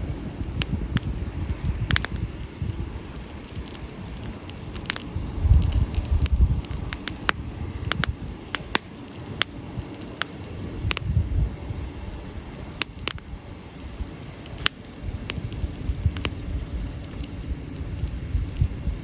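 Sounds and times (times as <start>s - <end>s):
low rumble: 0.0s - 8.5s
campfire crackling: 0.0s - 19.0s
fire pops: 0.0s - 19.0s.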